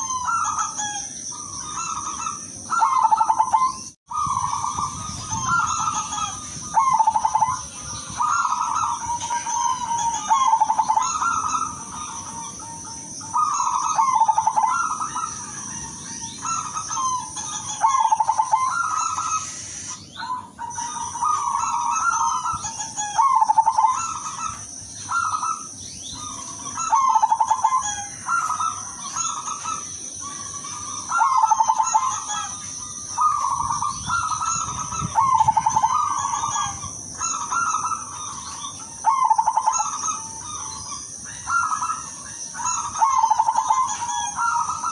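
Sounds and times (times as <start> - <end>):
dove cooing: 0.0 - 44.9.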